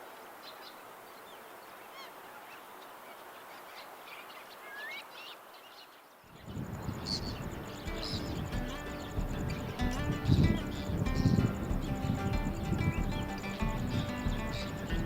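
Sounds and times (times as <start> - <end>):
waterbirds calling: 0.0 - 15.0
steady hiss: 6.2 - 15.0
music: 6.6 - 15.0.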